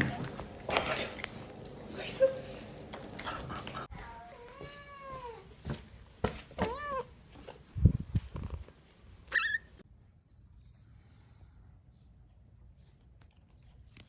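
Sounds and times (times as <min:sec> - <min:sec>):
cat meowing: 0:04.0 - 0:05.5, 0:06.6 - 0:07.1.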